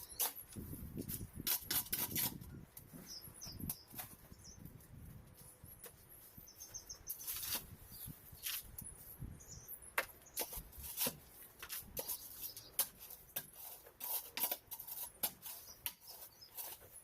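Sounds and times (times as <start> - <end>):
small bird chirping: 0.0 - 0.5, 2.5 - 4.8, 5.4 - 10.7, 12.0 - 12.9, 15.1 - 17.0
sharp scrapes and knocks: 0.0 - 9.1, 9.9 - 17.0.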